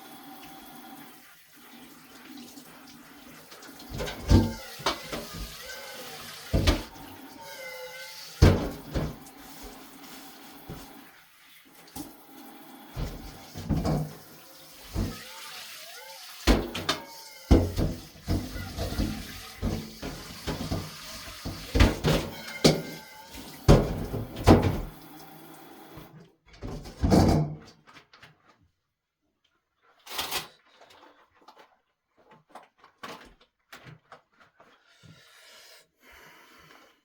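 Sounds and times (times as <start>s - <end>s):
tap running into a sink: 3.6s - 7.2s, 8.4s - 11.1s, 11.8s - 15.7s, 16.4s - 26.1s
dishes clinking and clattering: 3.8s - 5.7s, 13.0s - 14.3s, 16.4s - 25.0s.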